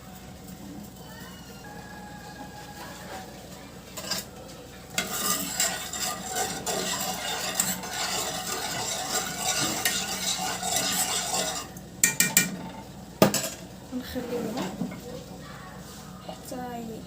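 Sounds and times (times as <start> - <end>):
spoon stirring in a pot: 3.9 - 13.6.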